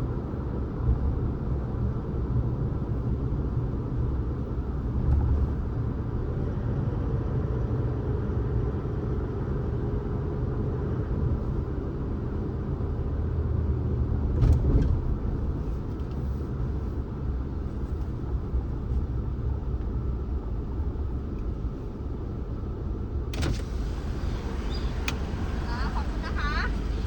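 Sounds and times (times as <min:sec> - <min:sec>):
car driving rumble: 0:11.2 - 0:27.0.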